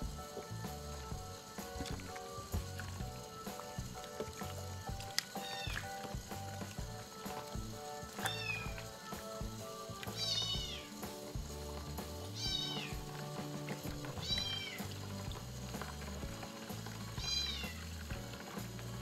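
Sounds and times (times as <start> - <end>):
background music: 0.0 - 19.0
kitten meowing: 5.4 - 5.8, 8.2 - 8.7, 10.1 - 10.9, 12.4 - 13.0, 14.2 - 14.8, 17.2 - 17.8.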